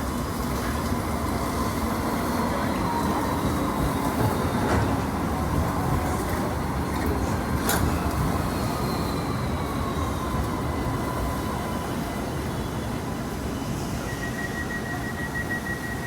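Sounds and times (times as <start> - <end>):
electric tram rumbling: 0.0 - 16.0.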